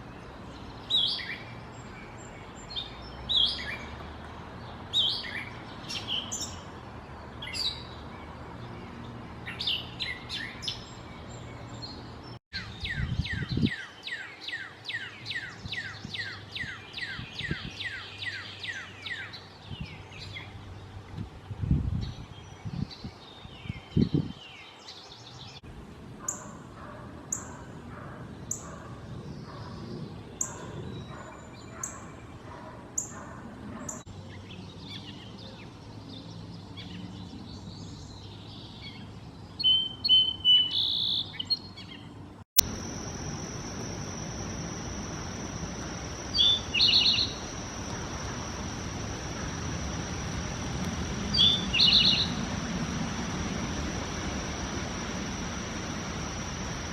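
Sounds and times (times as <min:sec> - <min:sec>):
bird song phrases: 0:00.0 - 0:04.0, 0:04.6 - 0:21.0, 0:21.6 - 0:25.6, 0:28.4 - 0:42.2, 0:46.0 - 0:47.5, 0:51.3 - 0:52.4
steady high hiss: 0:42.6 - 0:56.9
bird chirps: 0:42.8 - 0:49.6, 0:51.3 - 0:52.6.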